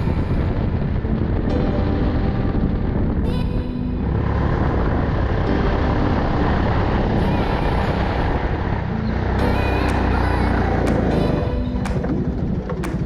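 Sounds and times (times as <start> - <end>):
go-kart engine running: 2.8 - 13.0.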